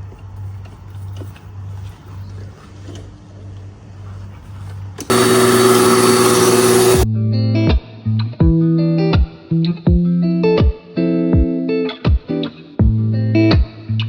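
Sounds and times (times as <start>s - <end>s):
electric lawn mower motor running: 5.0s - 7.0s.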